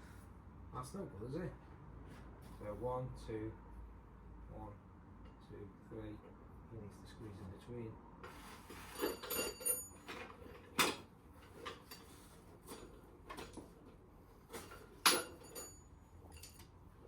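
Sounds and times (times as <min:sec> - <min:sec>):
light metal clinks and taps: 0:09.0 - 0:10.3, 0:14.6 - 0:16.8.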